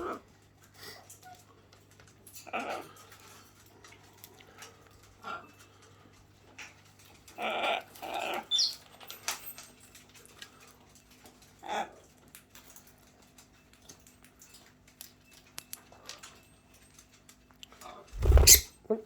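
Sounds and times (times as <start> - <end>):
birds clicking and scratching: 0.0 - 18.7
parrots squawking: 7.4 - 8.8, 18.2 - 18.7
parrot high chirp: 8.2 - 8.8, 18.2 - 18.7.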